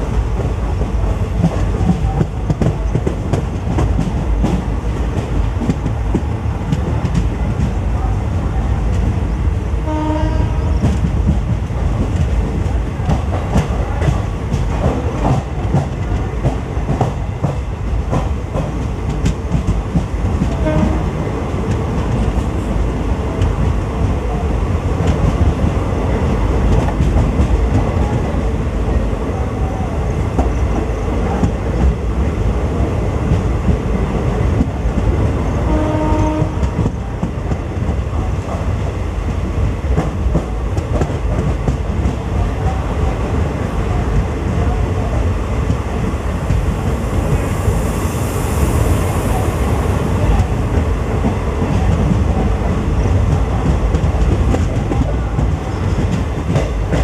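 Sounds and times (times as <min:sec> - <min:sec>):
train rumbling past: 0:00.0 - 0:57.0
train horn: 0:09.8 - 0:11.0, 0:20.5 - 0:21.3, 0:35.6 - 0:36.8.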